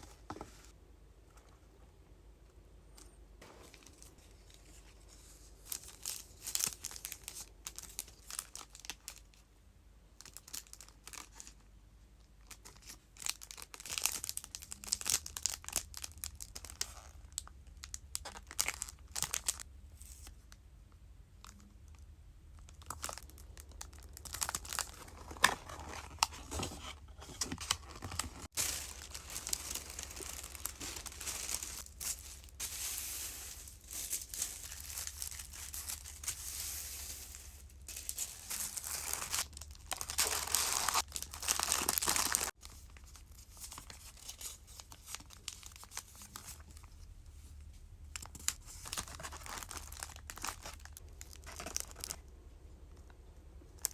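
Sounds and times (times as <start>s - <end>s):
packaging crinkling and rustling: 5.6s - 9.4s, 12.4s - 20.3s, 22.6s - 47.0s, 48.1s - 52.3s
packaging tearing: 27.6s - 42.6s.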